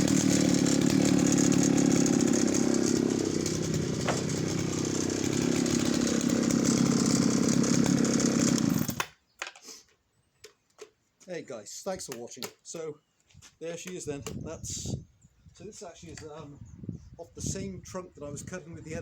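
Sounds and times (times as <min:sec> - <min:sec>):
chainsaw engine running: 0:00.0 - 0:09.1.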